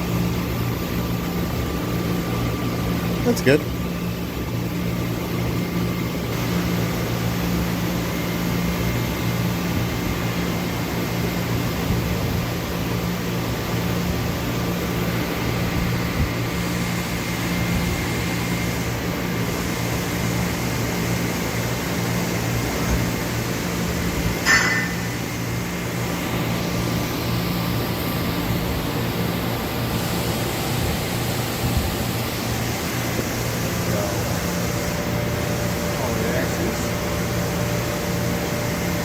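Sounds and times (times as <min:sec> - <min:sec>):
machine hum: 0:00.0 - 0:39.0
thin high whine: 0:22.2 - 0:31.6.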